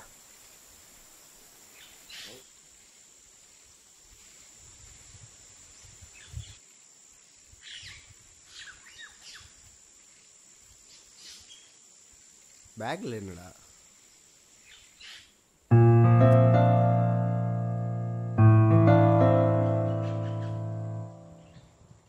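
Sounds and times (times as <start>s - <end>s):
birds chirping: 19.2s - 21.7s.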